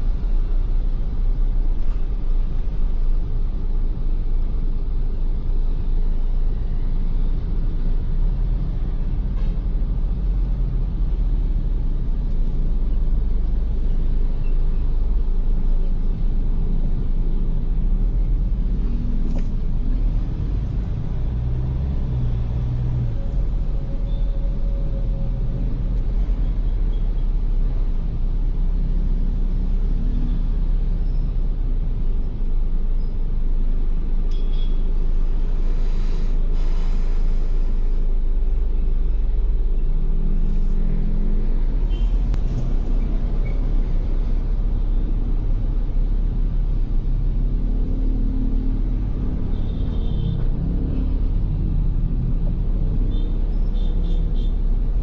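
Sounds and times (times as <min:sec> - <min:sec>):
rushing hiss: 0:35.6 - 0:38.0.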